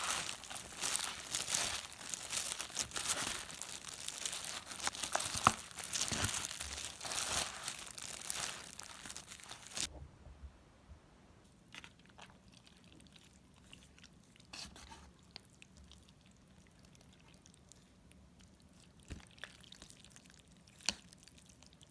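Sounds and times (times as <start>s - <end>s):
crinkling and crunching: 0.0s - 9.9s.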